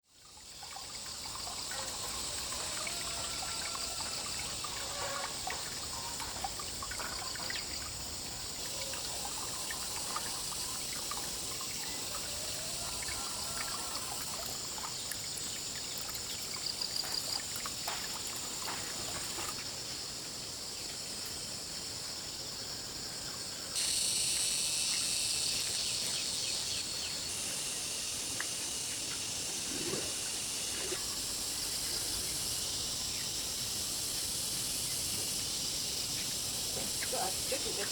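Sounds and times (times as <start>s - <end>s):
water trickling: 0.1s - 19.7s, 28.0s - 37.9s
high-pitched insect drone: 0.2s - 19.6s, 23.8s - 37.9s.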